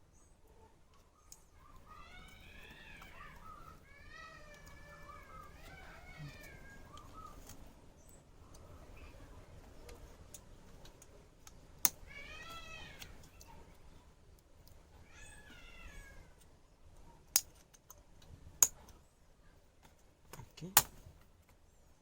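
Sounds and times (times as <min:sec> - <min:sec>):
cat meowing: 0:01.6 - 0:07.3, 0:12.0 - 0:13.6, 0:15.0 - 0:16.4.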